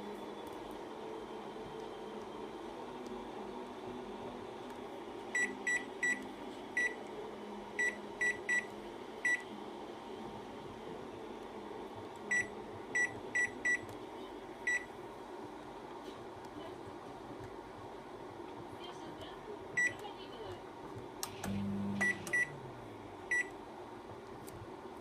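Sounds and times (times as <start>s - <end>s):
low steady hum: 0.0s - 25.0s
microwave touch-panel beeps: 5.3s - 6.2s, 6.8s - 7.0s, 7.8s - 9.5s, 12.3s - 13.9s, 14.6s - 14.9s, 19.8s - 20.0s, 21.3s - 22.6s, 23.3s - 23.5s.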